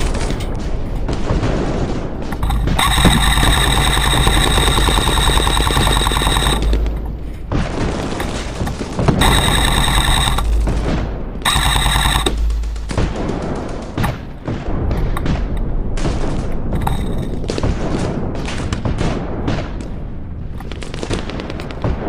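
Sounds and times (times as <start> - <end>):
airsoft gun firing full-auto: 2.8 - 6.8, 9.2 - 10.5, 11.5 - 12.6.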